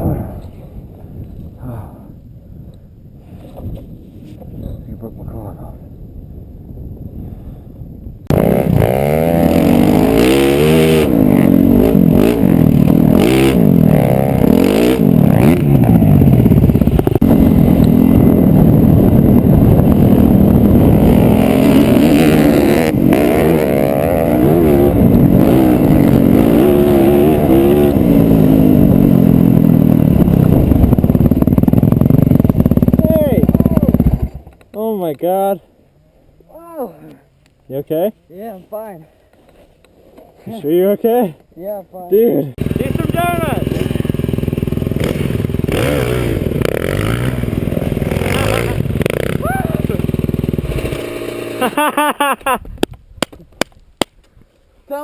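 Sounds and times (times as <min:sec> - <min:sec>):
dirt bike engine revving: 0:08.3 - 0:34.5, 0:42.5 - 0:52.1.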